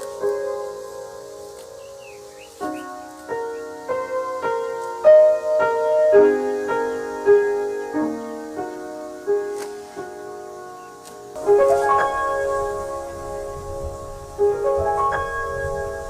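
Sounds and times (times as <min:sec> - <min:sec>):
slow gentle piano melody: 0:00.0 - 0:16.0.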